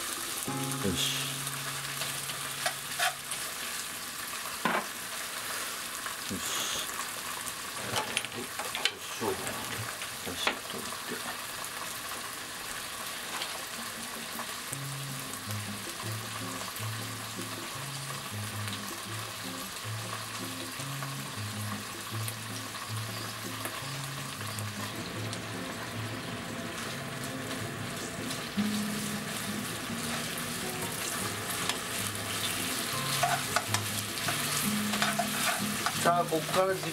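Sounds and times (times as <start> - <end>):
bacon sizzling in a frying pan: 0.0 - 36.9
low background music: 0.1 - 3.4, 13.6 - 36.9.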